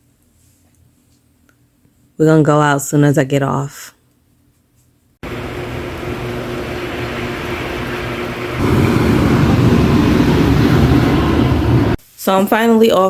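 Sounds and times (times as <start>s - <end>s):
vehicle running noise: 5.2s - 12.0s.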